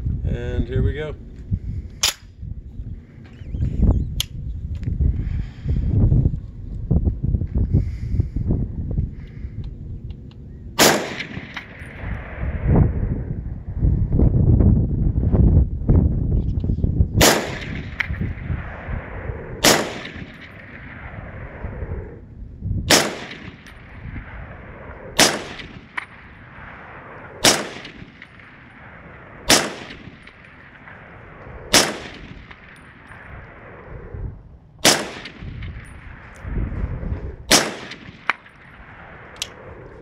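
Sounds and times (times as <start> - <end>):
wind buffeting microphone: 0.0 - 40.0
rifle shots echoing: 10.8 - 12.6, 17.2 - 21.6, 22.9 - 33.9, 34.8 - 36.5, 37.4 - 39.8.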